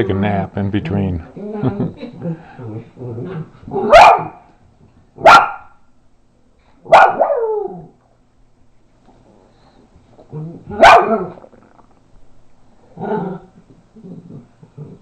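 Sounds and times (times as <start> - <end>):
dogs growling: 1.4 - 4.0, 10.2 - 12.0, 12.8 - 15.0
dog barking: 3.8 - 4.4, 5.2 - 5.8, 6.9 - 7.6, 10.7 - 11.4.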